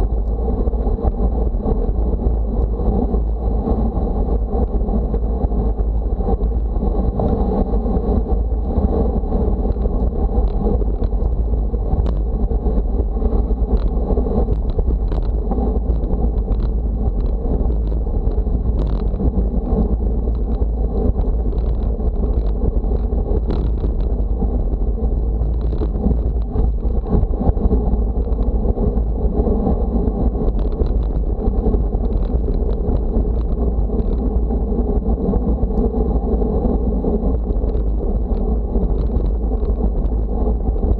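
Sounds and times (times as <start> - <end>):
wind buffeting microphone: 0.0 - 40.9
faint ticks: 12.0 - 12.3.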